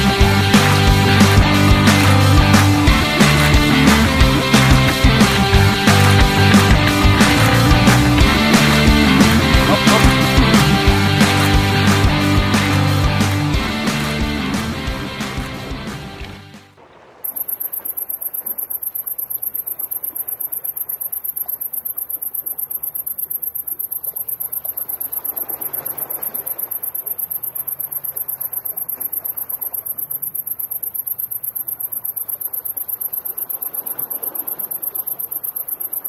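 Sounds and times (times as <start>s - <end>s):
faint sea and wind: 0.0s - 36.0s
crickets chirping: 17.2s - 36.0s.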